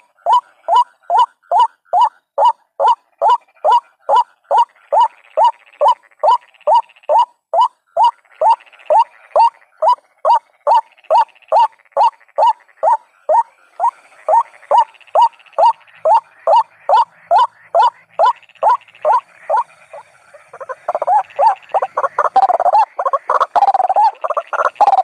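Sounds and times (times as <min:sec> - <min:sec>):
waterhen calling: 0:00.0 - 0:25.0
faint chattering: 0:08.0 - 0:25.0.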